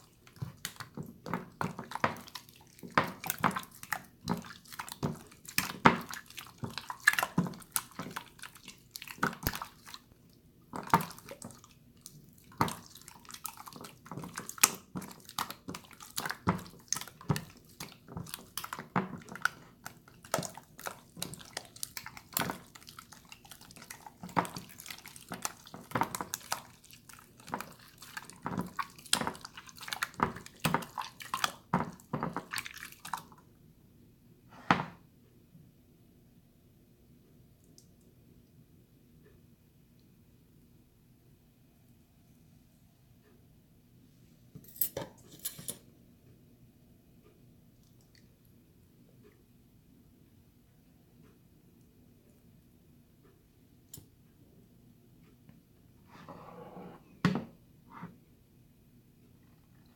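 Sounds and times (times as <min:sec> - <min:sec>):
slime squishing and squelching: 0:00.0 - 0:33.4.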